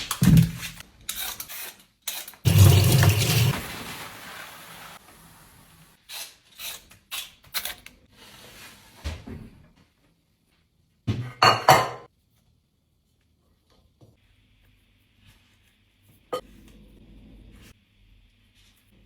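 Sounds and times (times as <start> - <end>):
dishes clattering: 11.3 - 12.1
dishes and cutlery clinking: 11.4 - 12.1.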